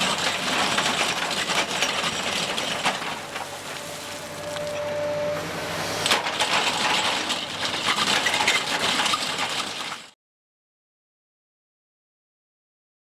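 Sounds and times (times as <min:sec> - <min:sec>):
rock grinder crunching rock: 0:00.0 - 0:03.8, 0:06.0 - 0:10.1
excavator engine hum: 0:00.0 - 0:10.1.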